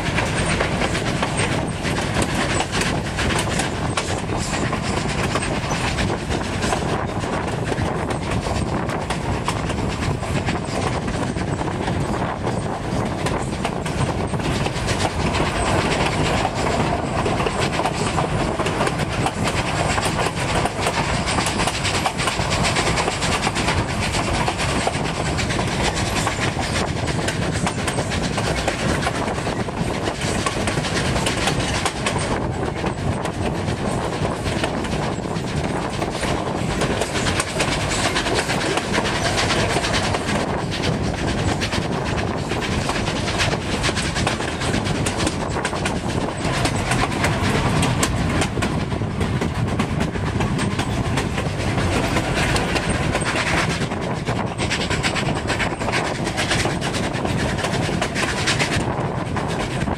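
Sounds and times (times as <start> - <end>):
train cars rumbling over rails: 0.0 - 59.9.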